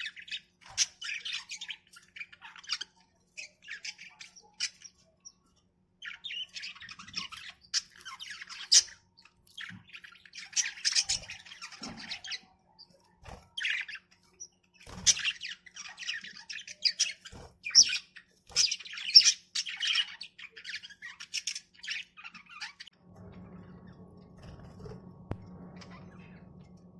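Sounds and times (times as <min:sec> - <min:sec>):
budgerigars chattering and squawking: 0:00.0 - 0:05.2, 0:06.0 - 0:12.6, 0:13.4 - 0:22.9.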